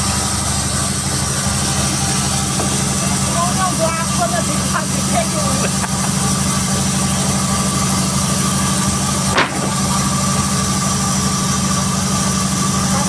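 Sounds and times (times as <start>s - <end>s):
sharp knock: 9.4s - 10.2s.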